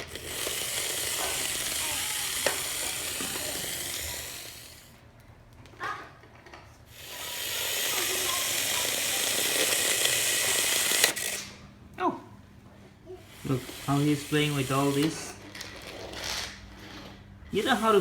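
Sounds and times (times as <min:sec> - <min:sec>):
toy motor gears whirring: 0:00.0 - 0:05.0, 0:05.8 - 0:11.6, 0:13.1 - 0:18.0
child's vocal sound: 0:00.3 - 0:04.9, 0:07.0 - 0:11.2, 0:13.0 - 0:15.0.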